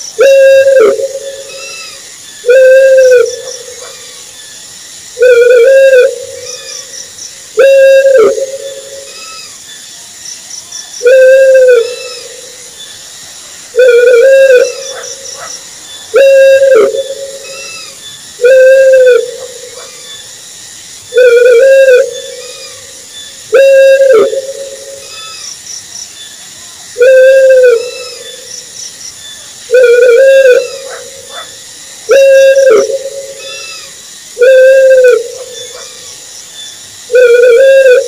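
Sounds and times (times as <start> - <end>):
owl hooting: 0.2 - 4.2, 5.2 - 6.9, 7.6 - 9.6, 11.0 - 12.6, 13.7 - 15.5, 16.1 - 20.2, 21.1 - 25.4, 27.0 - 28.5, 29.7 - 31.5, 32.1 - 36.2, 37.1 - 38.0.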